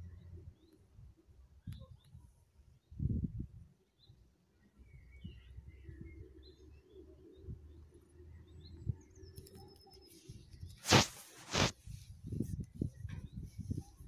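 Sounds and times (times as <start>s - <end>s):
small birds chirping: 0.0s - 14.0s
short loud burst of noise: 10.8s - 11.7s.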